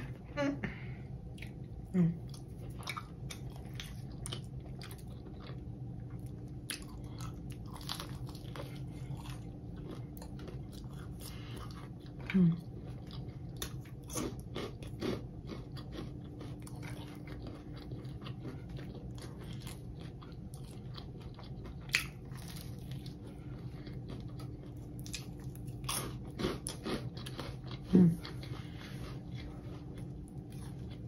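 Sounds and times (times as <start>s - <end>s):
crunchy chewing and biting: 2.2s - 31.0s.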